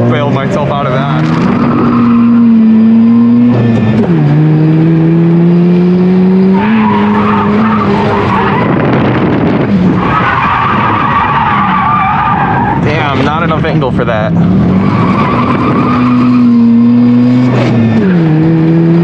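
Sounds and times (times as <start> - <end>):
rotary engine at high revs: 0.6 - 10.0, 14.2 - 19.0.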